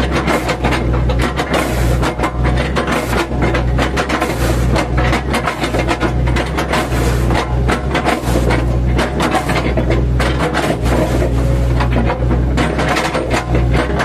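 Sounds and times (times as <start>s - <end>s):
bucket crunching wood: 0.0s - 14.0s
excavator engine running: 0.0s - 14.0s.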